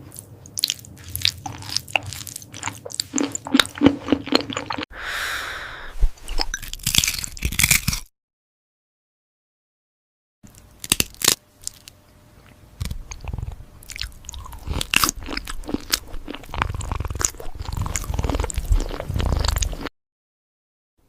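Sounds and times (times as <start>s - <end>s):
cat crunching food: 6.6s - 8.0s, 12.8s - 19.9s.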